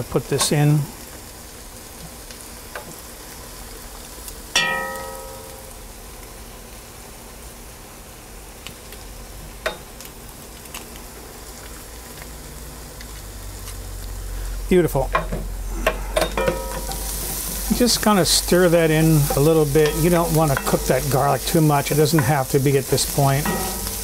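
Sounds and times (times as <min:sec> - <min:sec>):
onions and garlic sizzling: 0:00.0 - 0:24.0
sharp metal clink: 0:04.6 - 0:05.6, 0:16.2 - 0:17.0, 0:23.4 - 0:24.0.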